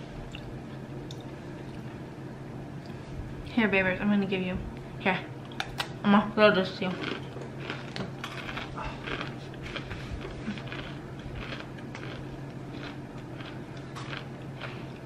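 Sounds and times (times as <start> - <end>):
steady low hum: 0.0 - 15.0
crunchy chewing: 6.8 - 15.0.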